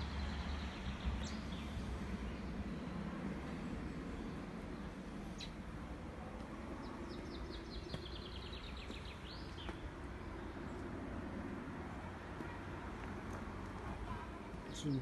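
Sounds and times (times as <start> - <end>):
songbird singing: 0.0 - 5.7, 6.4 - 11.1, 14.2 - 15.0.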